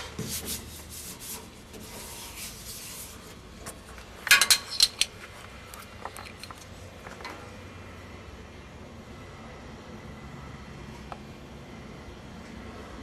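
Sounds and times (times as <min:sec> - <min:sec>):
faint handling noise: 0:00.4 - 0:07.5
metal parts clinking: 0:04.2 - 0:06.7.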